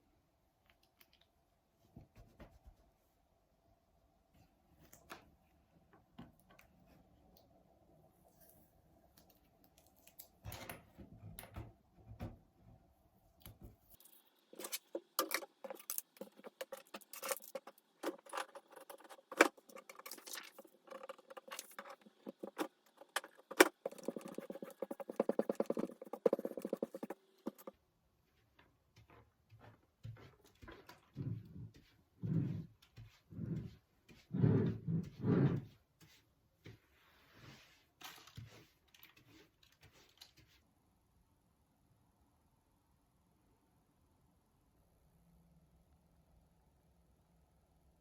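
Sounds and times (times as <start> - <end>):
small hard objects clicking and rattling: 14.0 - 27.7.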